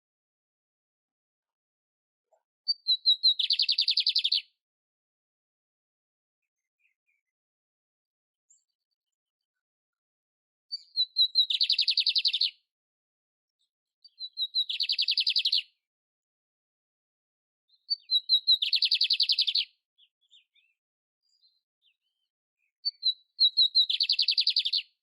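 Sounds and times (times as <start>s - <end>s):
canary singing with buzzy trill: 2.7s - 4.5s, 10.7s - 12.6s, 14.1s - 15.8s, 17.7s - 20.7s, 22.9s - 25.0s.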